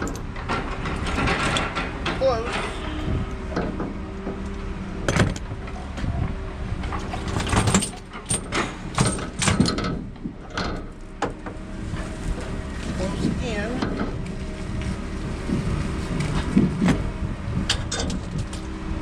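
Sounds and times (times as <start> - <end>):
metal tools clanking and rattling: 0.0 - 3.9, 6.8 - 11.5, 17.7 - 18.6
engine hum: 0.0 - 19.0.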